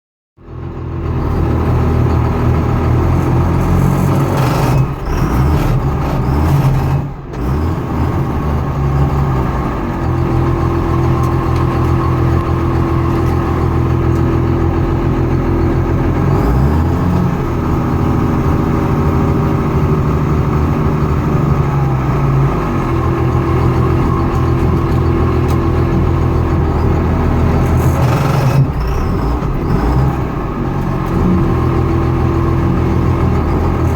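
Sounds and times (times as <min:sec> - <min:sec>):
engine running: 0:00.4 - 0:33.9
grinding noise: 0:02.8 - 0:08.2, 0:22.6 - 0:30.3.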